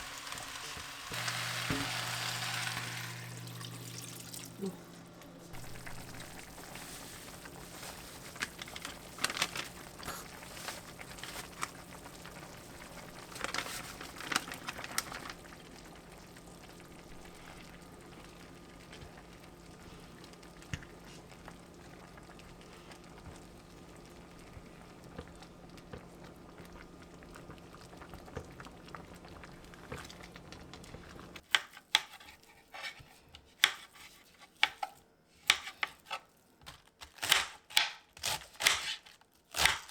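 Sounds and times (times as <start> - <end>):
pot of liquid bubbling: 5.5 - 31.4.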